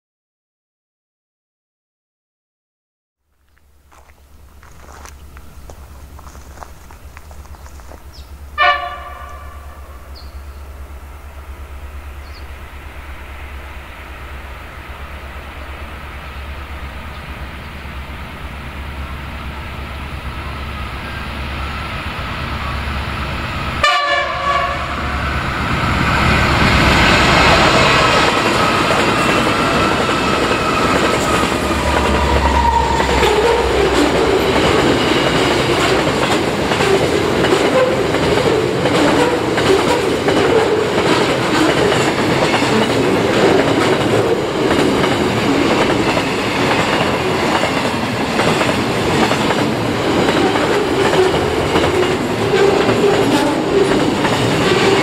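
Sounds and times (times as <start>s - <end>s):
train horn: 8.6s - 10.4s, 23.8s - 25.4s, 30.7s - 34.8s
train wheels clattering: 26.6s - 55.0s.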